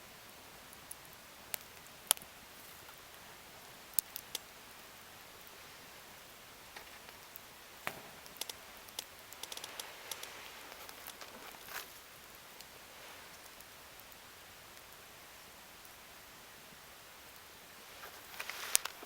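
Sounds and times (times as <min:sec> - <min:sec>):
low hiss: 0:00.0 - 0:19.0
wood clicking and snapping: 0:06.8 - 0:11.9.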